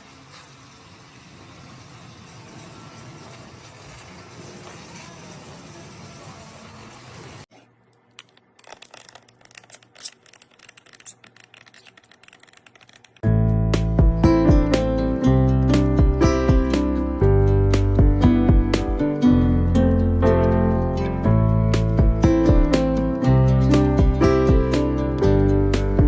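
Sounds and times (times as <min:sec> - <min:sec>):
loud guitar music: 0:13.3 - 0:26.0.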